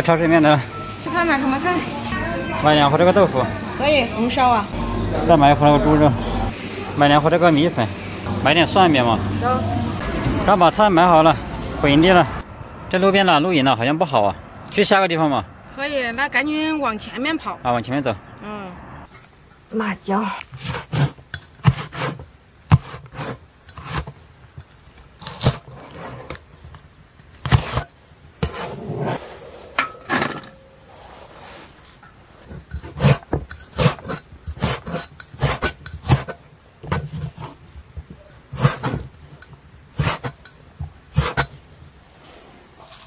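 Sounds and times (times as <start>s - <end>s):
rubbing and scraping: 20.5s - 24.2s, 25.2s - 26.7s, 27.3s - 43.0s.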